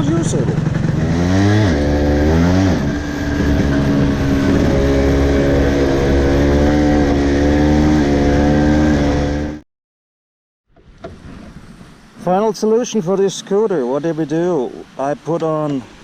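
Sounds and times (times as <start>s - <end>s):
scooter engine running: 0.0s - 9.6s.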